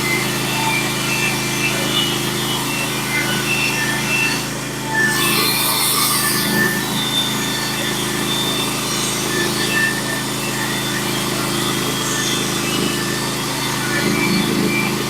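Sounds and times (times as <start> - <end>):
engine drone: 0.0 - 15.0
bandsaw blade cutting wood: 5.0 - 10.4.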